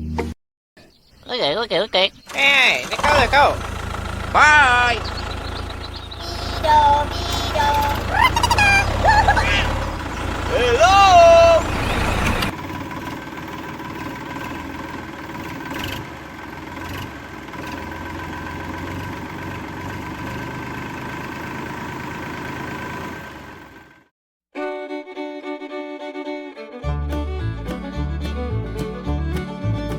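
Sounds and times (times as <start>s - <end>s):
toy tractor motor humming: 2.3s - 20.9s
fiddle music: 2.9s - 12.6s, 24.6s - 29.9s.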